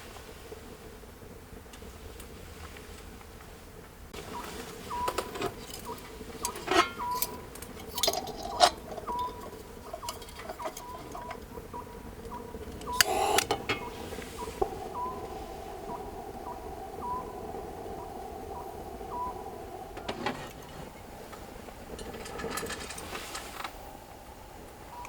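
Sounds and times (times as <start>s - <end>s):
dishes and utensils clinking: 5.4s - 11.3s.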